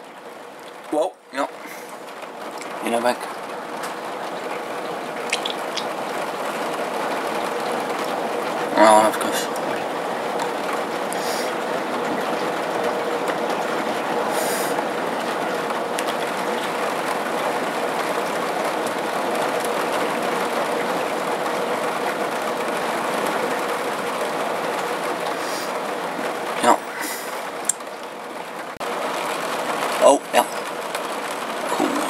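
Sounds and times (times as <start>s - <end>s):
heavy rain falling: 0.0s - 32.0s.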